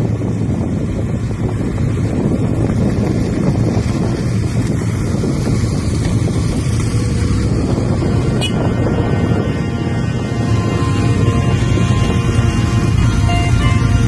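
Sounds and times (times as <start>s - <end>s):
low engine drone: 0.0s - 14.0s
wind buffeting microphone: 0.0s - 14.0s.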